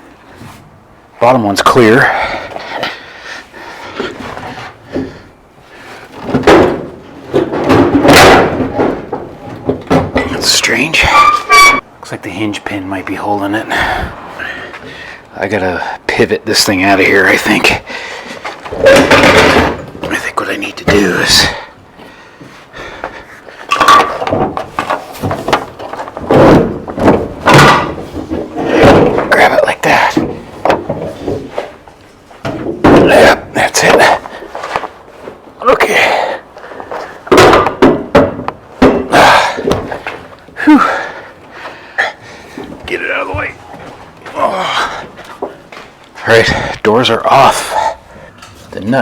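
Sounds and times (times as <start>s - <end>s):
loud metal knocks: 6.3s - 10.4s, 23.8s - 29.4s, 37.3s - 40.1s.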